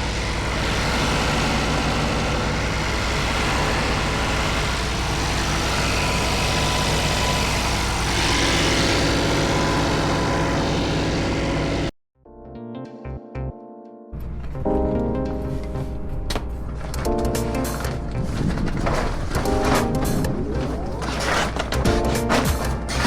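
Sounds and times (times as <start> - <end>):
music: 12.2 - 23.0
car engine running: 16.6 - 23.0.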